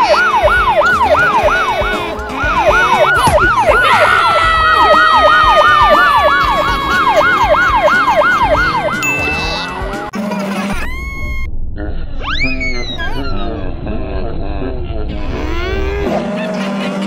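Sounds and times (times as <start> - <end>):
long falling tone: 0.0 - 10.1
yelping siren: 0.0 - 10.1.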